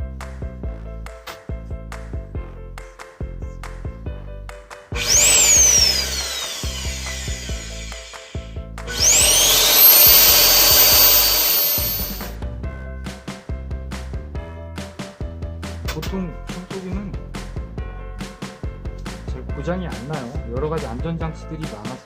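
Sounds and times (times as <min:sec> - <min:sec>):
background music with steady beat: 0:00.0 - 0:11.5, 0:12.2 - 0:22.0
vacuum cleaner motor whining: 0:05.0 - 0:12.3.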